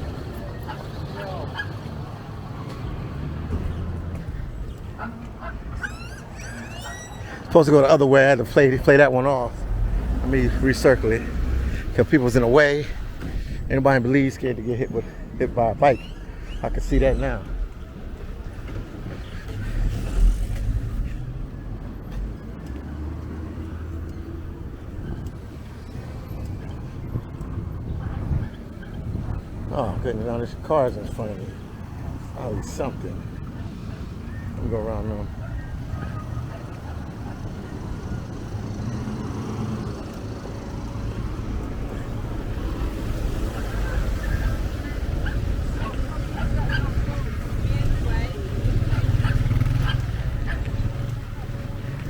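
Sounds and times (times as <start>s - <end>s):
car engine rumble: 0.0s - 52.0s
road noise: 0.0s - 52.0s
wind on microphone: 24.7s - 30.4s.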